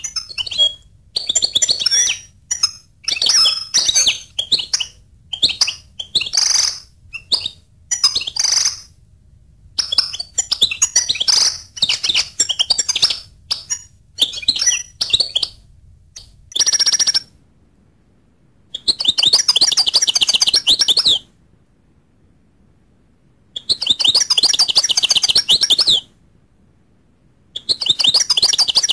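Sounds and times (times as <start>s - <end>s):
goldfinch singing: 0.0s - 8.9s, 9.8s - 15.6s, 27.6s - 28.9s.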